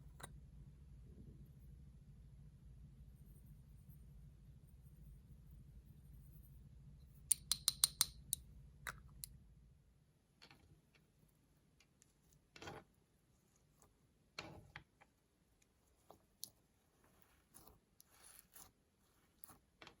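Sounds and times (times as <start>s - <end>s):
makeup containers clicking: 7.3s - 9.0s.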